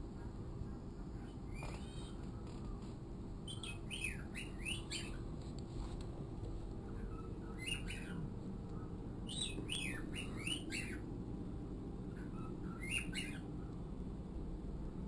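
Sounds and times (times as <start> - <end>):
pet bird singing: 1.5 - 2.2, 3.4 - 5.3, 6.9 - 11.1, 12.1 - 13.5.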